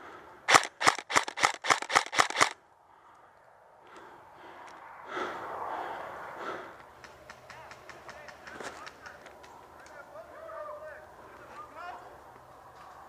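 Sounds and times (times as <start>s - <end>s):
airsoft rifle shots: 0.5s - 2.6s
rustling of movement: 0.5s - 10.2s
faint clicks: 6.8s - 10.0s.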